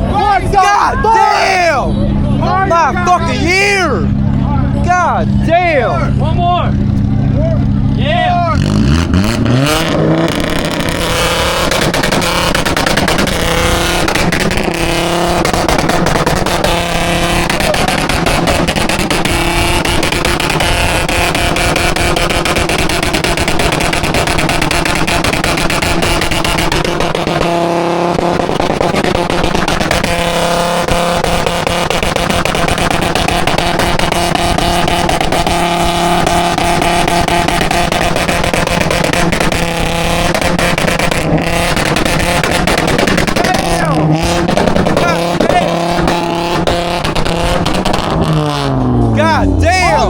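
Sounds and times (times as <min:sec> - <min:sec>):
car engine revving with exhaust crackle: 0:00.0 - 0:50.0.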